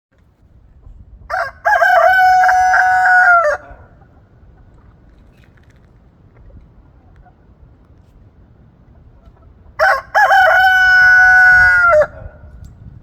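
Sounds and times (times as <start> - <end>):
rooster crowing: 1.3 - 3.9, 9.8 - 12.5.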